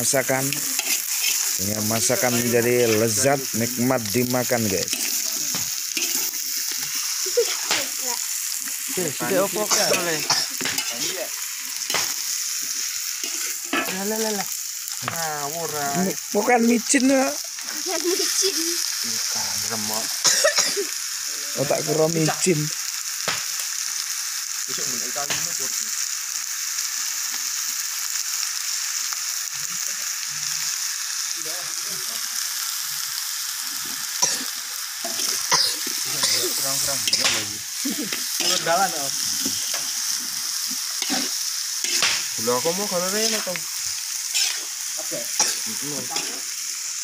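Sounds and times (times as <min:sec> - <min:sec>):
meat sizzling in a wok: 0:00.0 - 0:47.0.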